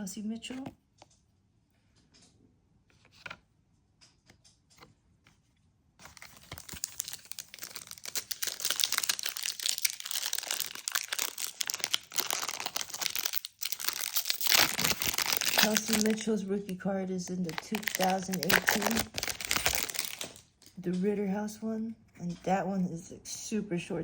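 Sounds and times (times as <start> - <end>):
foil wrapper tearing and crinkling: 6.0 - 16.3, 17.5 - 20.4.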